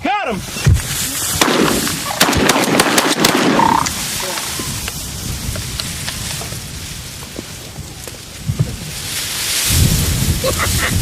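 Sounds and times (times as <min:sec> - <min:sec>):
shotgun shots: 0:01.4 - 0:04.0.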